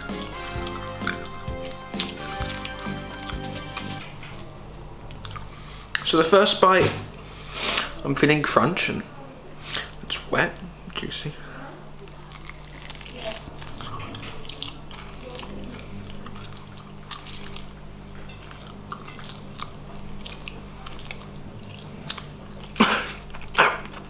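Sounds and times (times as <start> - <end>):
chewing crispy fried chicken: 0.0 - 4.1, 11.9 - 24.0
steady low hum: 0.0 - 24.0.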